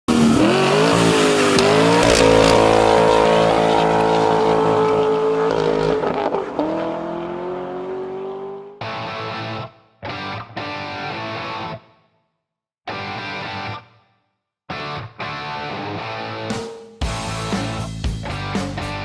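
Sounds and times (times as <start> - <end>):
car engine revving high: 0.1 - 8.8.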